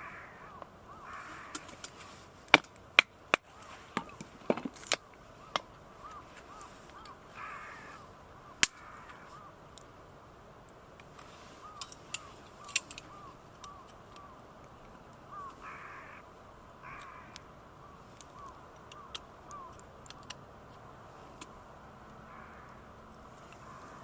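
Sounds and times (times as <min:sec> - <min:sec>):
crows cawing harshly: 0:00.0 - 0:02.3, 0:03.4 - 0:04.4, 0:05.3 - 0:09.8, 0:11.4 - 0:14.6, 0:15.2 - 0:20.4, 0:21.1 - 0:24.0
bird's repeated short calls: 0:00.0 - 0:02.4, 0:05.3 - 0:09.6, 0:11.3 - 0:14.5, 0:15.3 - 0:20.4, 0:22.3 - 0:24.0
sharp clicks and snaps: 0:18.1 - 0:20.8.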